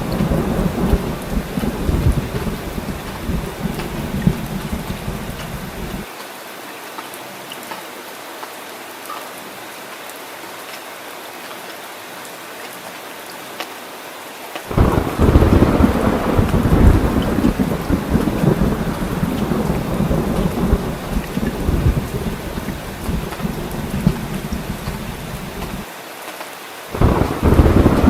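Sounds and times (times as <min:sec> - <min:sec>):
deep rumble of thunder: 0:00.0 - 0:06.1, 0:14.7 - 0:25.8, 0:27.0 - 0:28.0
heavy rain: 0:00.0 - 0:28.0.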